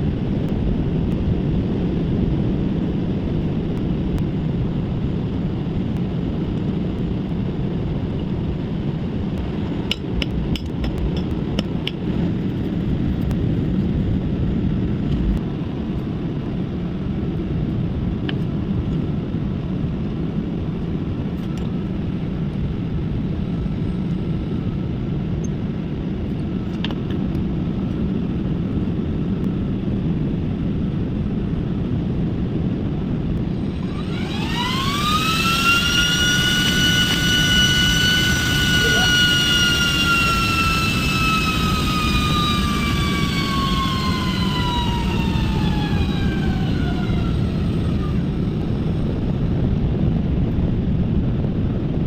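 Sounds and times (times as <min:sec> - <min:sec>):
electric fan running: 0:00.0 - 0:18.7, 0:32.2 - 0:52.0.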